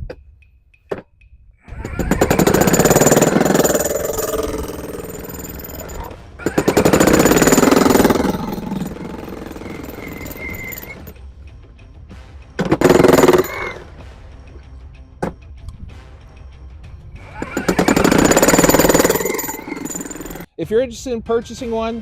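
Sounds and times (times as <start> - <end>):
demolition breaker hammering concrete: 1.7 - 11.1, 12.6 - 13.8, 17.3 - 20.5.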